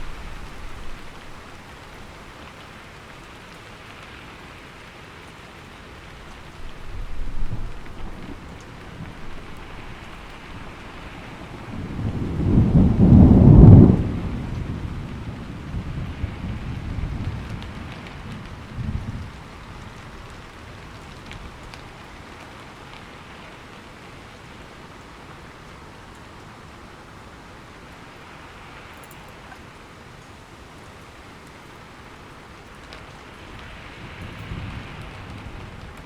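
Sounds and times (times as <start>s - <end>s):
thunder rumbling: 0.0s - 2.4s, 6.0s - 22.7s, 33.4s - 36.0s
steady rain: 0.0s - 36.0s.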